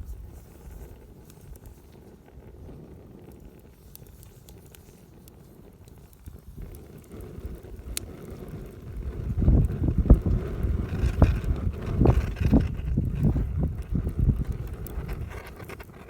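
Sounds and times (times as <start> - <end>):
wind on microphone: 0.0 - 1.7, 5.6 - 16.0
campfire crackling and popping: 0.0 - 16.0.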